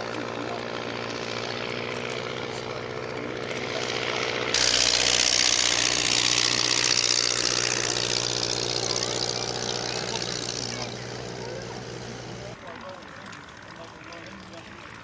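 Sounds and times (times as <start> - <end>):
propeller aircraft engine drone: 0.0 - 15.0.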